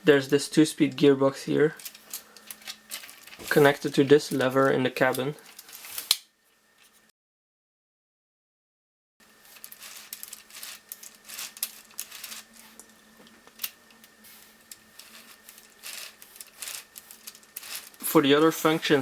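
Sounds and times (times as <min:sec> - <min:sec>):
plastic toy parts clicking: 0:09.6 - 0:18.0.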